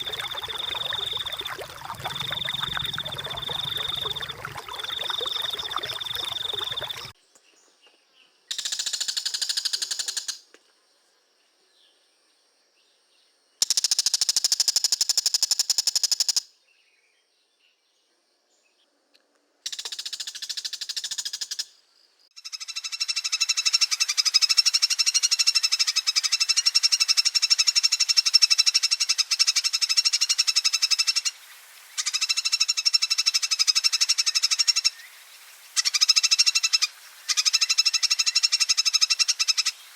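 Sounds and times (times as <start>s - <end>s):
trilling animal calls: 0.0s - 7.1s.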